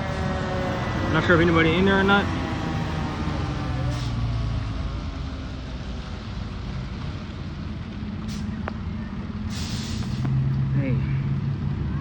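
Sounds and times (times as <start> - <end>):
vehicle engine rumbling: 0.0 - 12.0
outdoor noise hiss: 9.4 - 10.6.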